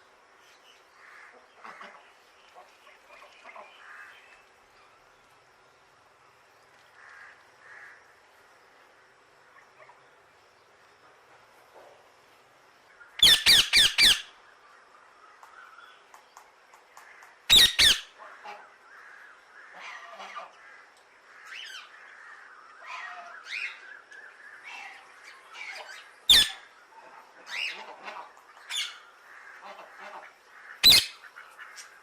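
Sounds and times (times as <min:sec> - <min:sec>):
parrot squawking: 0:13.2 - 0:14.3, 0:17.5 - 0:18.1, 0:25.6 - 0:26.6, 0:30.8 - 0:31.2.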